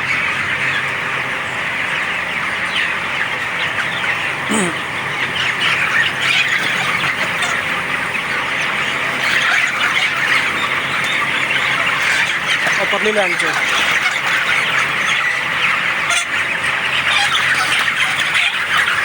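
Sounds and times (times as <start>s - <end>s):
chicks cheeping: 0.0s - 19.0s
low falling squawk: 3.5s - 15.5s.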